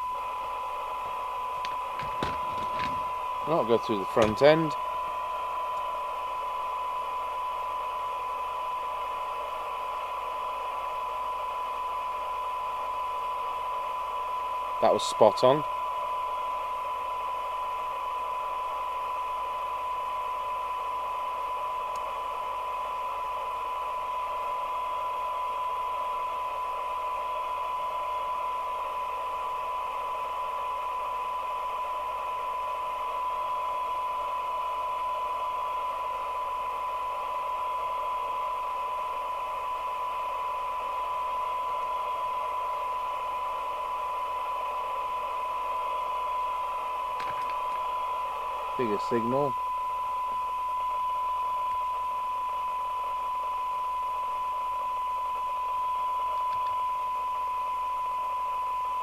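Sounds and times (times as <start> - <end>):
receiver hiss: 0.0 - 59.0
steady test tone: 1.5 - 4.9.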